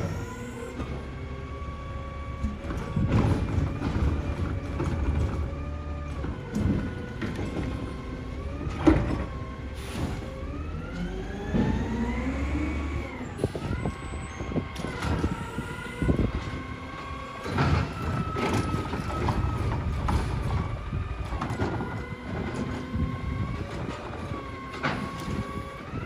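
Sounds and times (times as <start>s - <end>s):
garbage truck engine and hydraulics: 0.0s - 26.0s
hydraulic whine: 0.0s - 26.0s
metal knocks and clanks: 2.4s - 10.4s, 17.4s - 25.6s.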